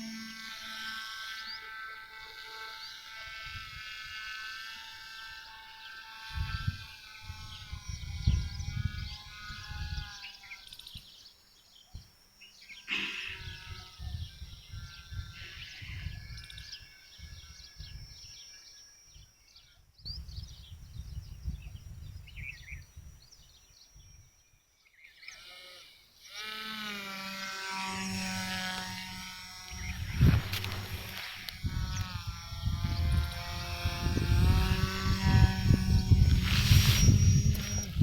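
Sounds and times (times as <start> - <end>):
model aircraft motor buzzing: 0.0 - 11.3, 12.5 - 19.3, 20.3 - 38.0
wind buffeting microphone: 6.2 - 10.3, 13.4 - 18.3, 20.0 - 23.3, 28.0 - 38.0.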